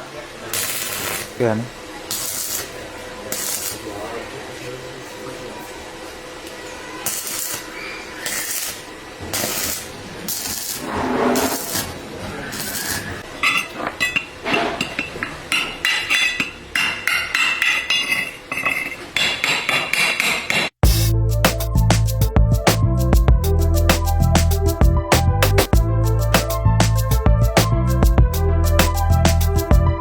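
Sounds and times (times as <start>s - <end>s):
harsh scraping on metal: 7.0s - 15.4s
hammer tapping on metal: 13.4s - 20.8s
music: 20.8s - 30.0s.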